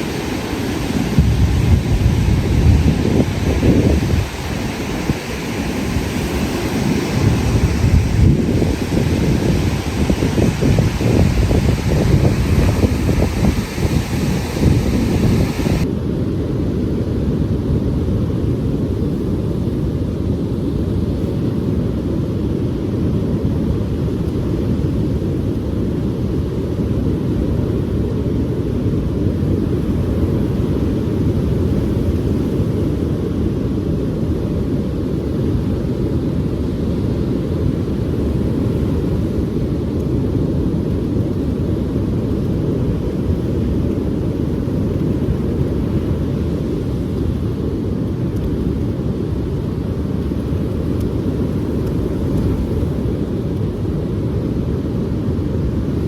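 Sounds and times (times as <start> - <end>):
wind buffeting microphone: 0.0 - 15.9.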